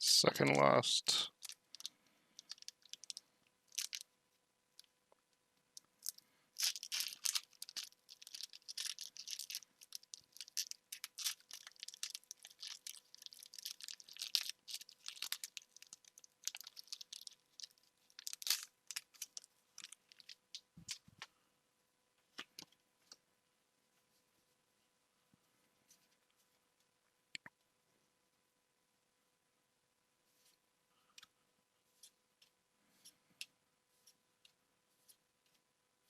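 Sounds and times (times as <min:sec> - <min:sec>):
foil wrapper crinkling and tearing: 0:01.3 - 0:04.0, 0:06.0 - 0:21.0.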